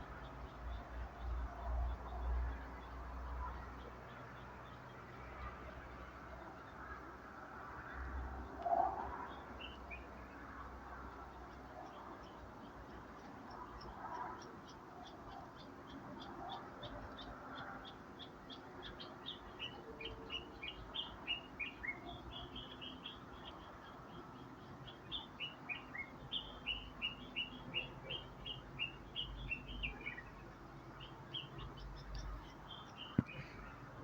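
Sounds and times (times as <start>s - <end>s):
bird chirping: 11.8s - 34.0s.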